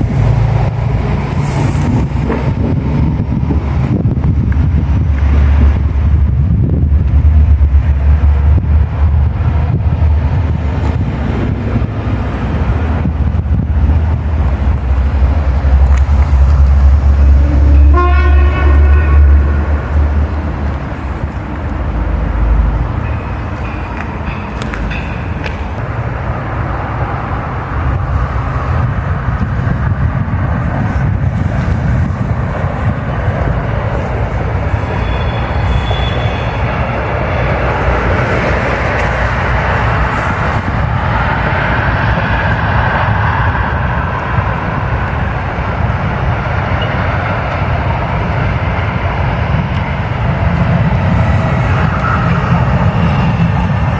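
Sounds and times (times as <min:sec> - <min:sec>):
train rumbling past: 0:00.0 - 0:53.9
train horn: 0:17.1 - 0:20.2, 0:35.0 - 0:36.7.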